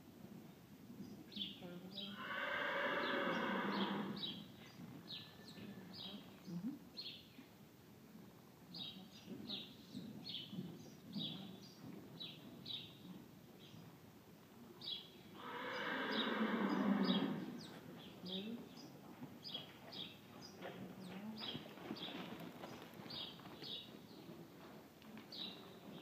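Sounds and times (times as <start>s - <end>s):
small birds chirping: 2.8s - 7.5s, 8.7s - 13.9s, 14.8s - 24.4s, 25.2s - 26.0s
horse hooves thudding on sand: 17.6s - 26.0s.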